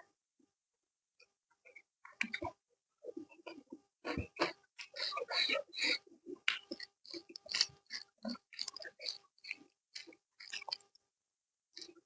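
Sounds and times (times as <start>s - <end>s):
close-miked chewing: 3.2s - 11.0s.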